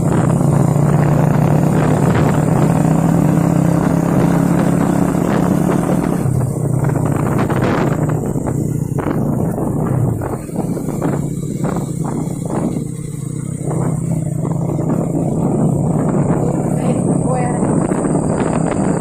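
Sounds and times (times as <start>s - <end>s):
heavy truck engine running: 0.0s - 19.0s.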